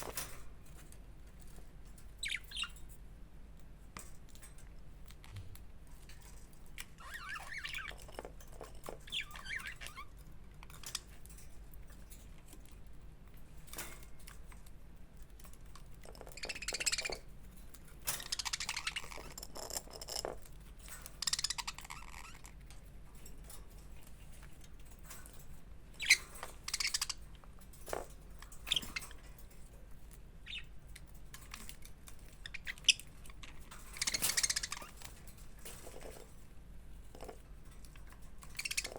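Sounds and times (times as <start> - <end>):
budgerigars chirping and chattering: 2.2 - 2.8, 7.0 - 8.1, 9.0 - 10.1, 16.3 - 17.3, 18.2 - 19.2, 21.2 - 22.5, 26.0 - 27.3, 30.4 - 30.8, 32.4 - 35.1, 38.4 - 38.9.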